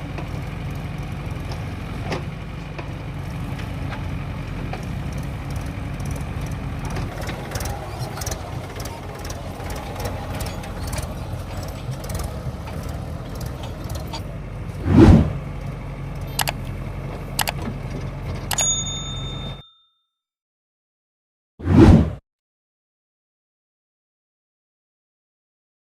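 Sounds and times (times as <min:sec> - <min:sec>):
diesel engine running: 0:00.0 - 0:19.6
ringing metallic clinks: 0:18.5 - 0:20.0.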